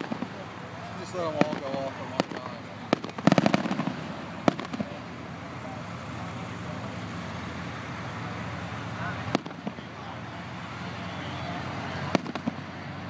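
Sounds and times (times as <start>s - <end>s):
background noise: 0.0s - 13.0s
fireworks bangs: 0.0s - 13.0s.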